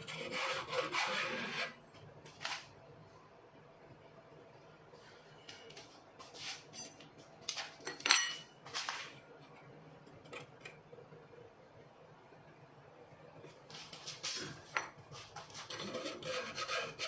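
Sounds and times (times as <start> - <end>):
metal tools clinking and scraping: 7.8 - 8.5.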